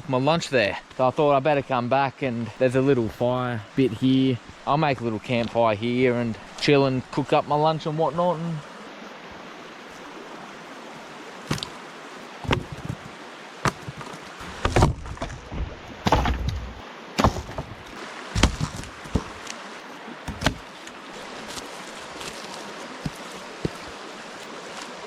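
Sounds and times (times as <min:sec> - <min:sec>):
stream rushing: 0:00.0 - 0:25.0
irregular knocks and clatters: 0:12.4 - 0:19.4, 0:20.3 - 0:20.6.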